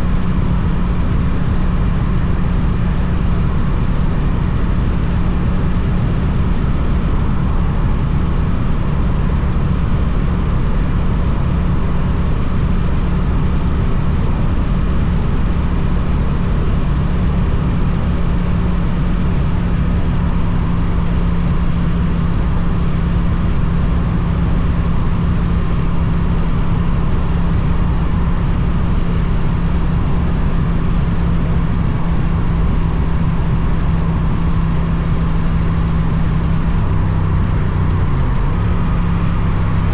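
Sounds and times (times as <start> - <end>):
motorcycle engine cruising: 17.4 - 39.9.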